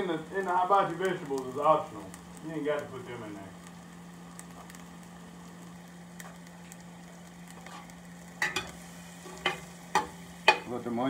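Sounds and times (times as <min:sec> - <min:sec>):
onions sizzling in a skillet: 0:00.0 - 0:11.0
metal spoon clacking on pan: 0:08.4 - 0:08.7, 0:09.4 - 0:10.7.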